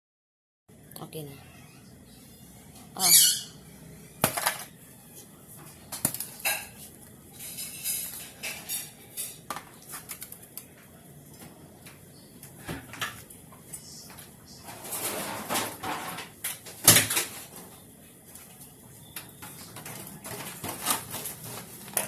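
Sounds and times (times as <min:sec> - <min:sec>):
dishes and utensils clinking: 0:05.6 - 0:10.3.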